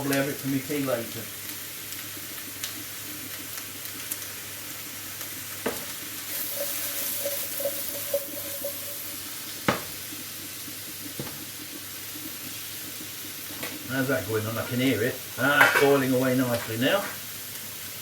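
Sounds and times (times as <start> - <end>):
vegetables sizzling in pan: 0.0 - 18.0
utensil knocking against pan: 9.7 - 10.0.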